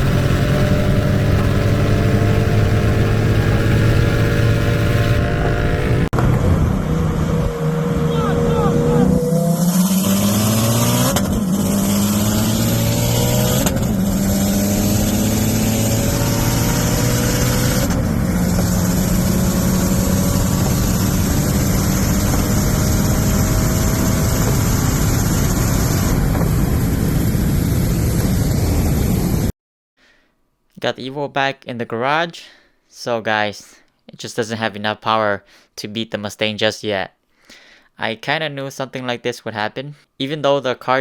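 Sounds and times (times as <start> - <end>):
car engine accelerating hard: 0.0 - 29.5.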